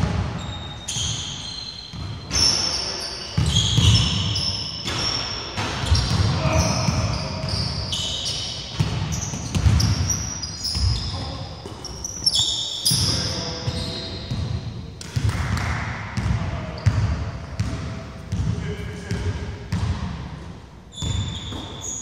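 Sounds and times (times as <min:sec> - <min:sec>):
sneakers squeaking: 0:00.0 - 0:20.0, 0:20.9 - 0:22.0
basketball bouncing on wooden floor: 0:08.8 - 0:10.0.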